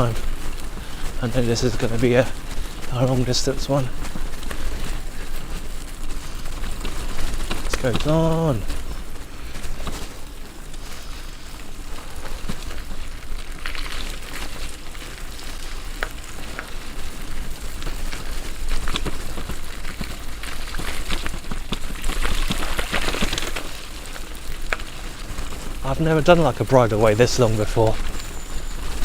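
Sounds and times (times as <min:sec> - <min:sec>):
bicycle tyres on rough track: 0:00.0 - 0:29.0
ticks and rattles: 0:00.0 - 0:29.0
wind rumbling on microphone: 0:00.0 - 0:29.0.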